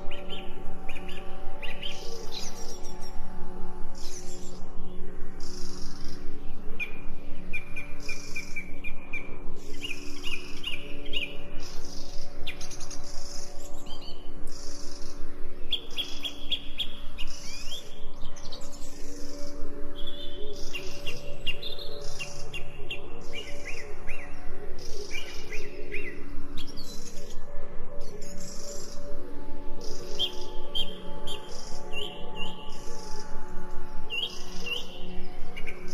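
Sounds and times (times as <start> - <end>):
birds chirping and singing: 0.0 - 3.3, 5.4 - 35.9
low sustained tones: 0.0 - 35.9.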